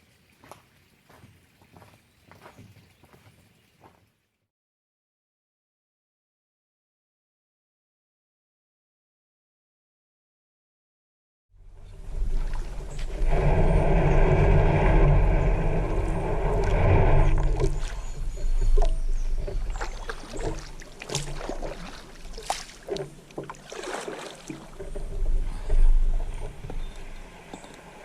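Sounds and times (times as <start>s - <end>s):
loud steady rumble: 11.6s - 20.8s
water splashing: 11.6s - 28.0s.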